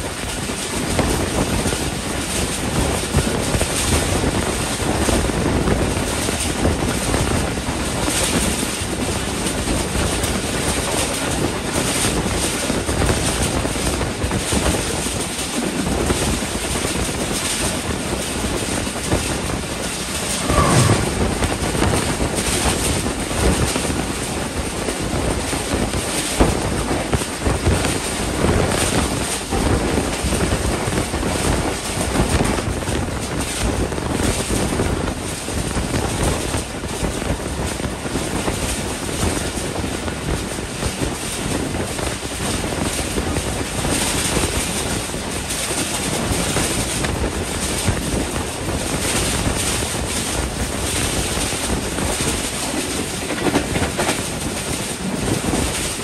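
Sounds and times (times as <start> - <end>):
rushing wind: 0.0 - 56.0
train rail running noise: 0.0 - 56.0
wind buffeting microphone: 0.0 - 56.0
passing freight wagons clattering: 6.2 - 24.8.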